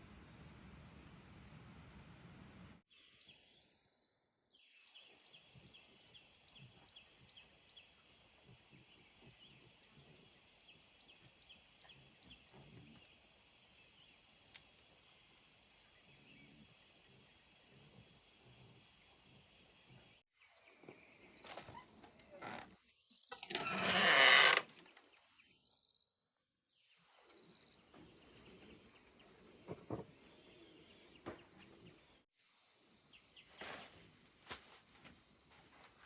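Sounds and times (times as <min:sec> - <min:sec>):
insect chirping: 0:25.2 - 0:28.0.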